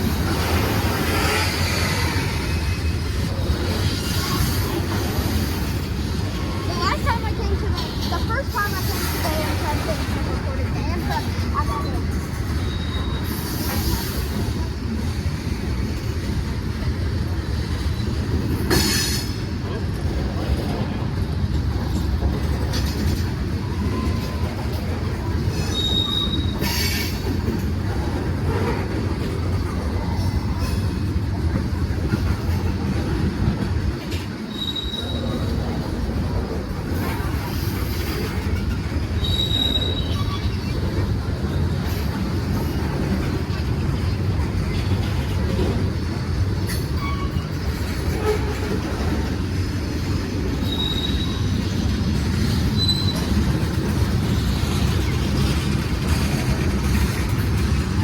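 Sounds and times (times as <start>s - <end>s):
freight train wheels rumbling: 0.0s - 58.0s
high-pitched wheel squeal: 25.6s - 27.2s, 34.5s - 35.5s, 39.2s - 40.7s, 50.6s - 51.4s, 52.8s - 53.4s.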